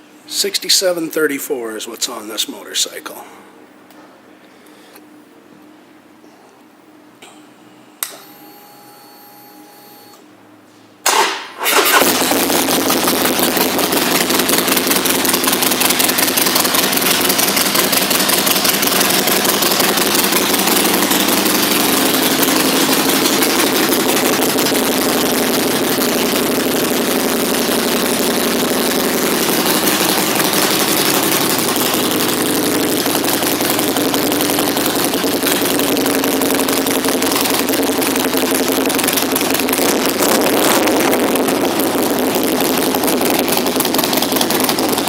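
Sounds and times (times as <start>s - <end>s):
motorcycle engine idling: 12.2s - 45.0s.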